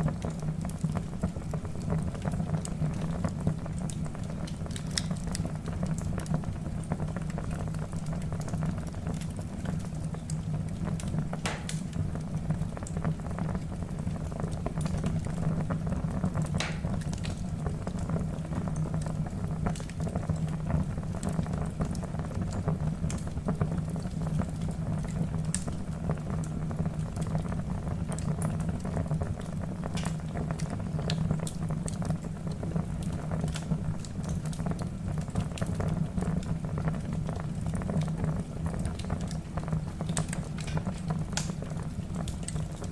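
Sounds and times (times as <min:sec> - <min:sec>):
wood fire crackling: 0:00.0 - 0:42.9
fire popping: 0:07.2 - 0:20.4, 0:28.0 - 0:37.0, 0:37.7 - 0:42.9.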